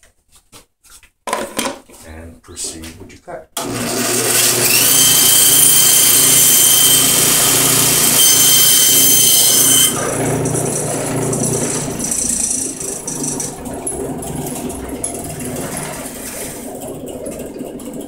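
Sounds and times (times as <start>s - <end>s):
saw cutting through board: 3.6s - 16.6s
band saw whine: 3.6s - 16.8s.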